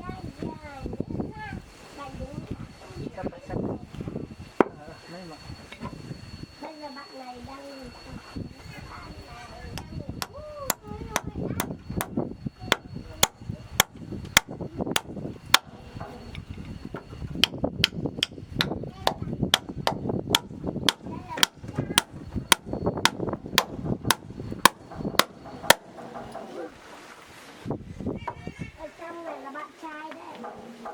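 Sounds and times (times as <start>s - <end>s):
hammer striking wooden planks: 12.7s - 15.8s, 17.4s - 26.0s.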